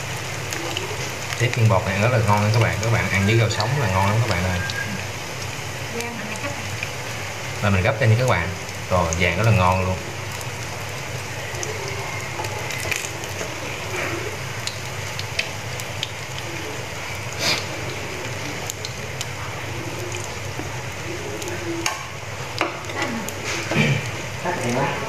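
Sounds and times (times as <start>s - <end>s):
shrimp sizzling in hot oil: 0.0s - 25.0s.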